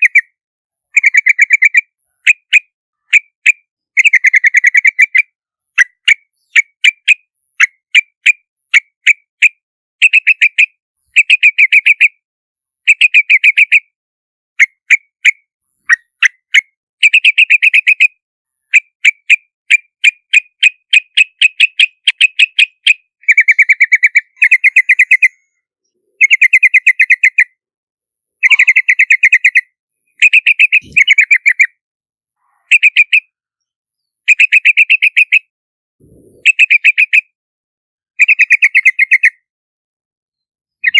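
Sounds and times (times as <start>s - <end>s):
bird chirping: 0.9s - 8.1s, 20.0s - 27.6s, 28.4s - 31.8s, 32.4s - 37.3s.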